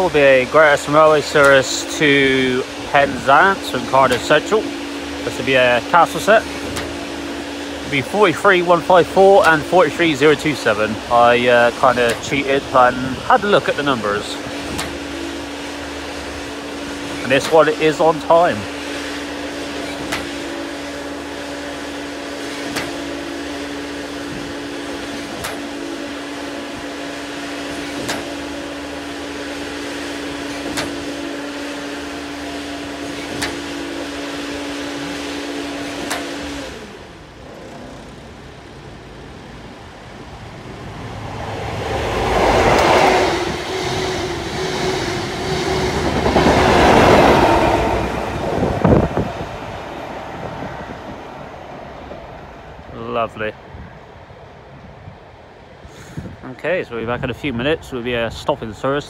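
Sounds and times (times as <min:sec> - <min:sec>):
passing train with engine drone: 0:00.0 - 0:59.0
steady hum: 0:00.0 - 0:59.0.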